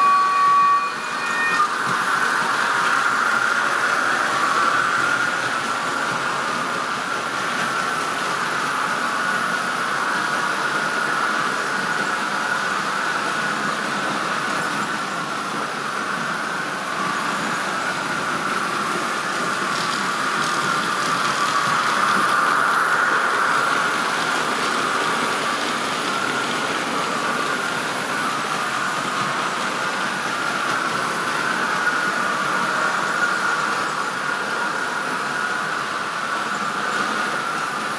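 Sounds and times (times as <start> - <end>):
model locomotive hum: 0.0 - 37.9.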